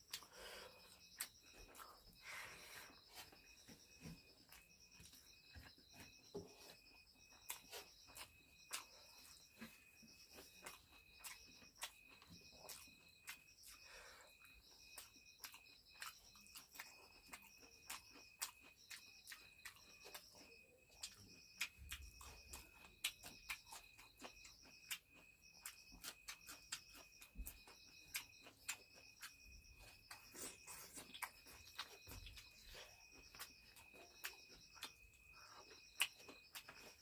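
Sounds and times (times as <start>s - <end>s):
chewing and crunching food: 0.0s - 37.0s
crickets chirping: 0.0s - 37.0s.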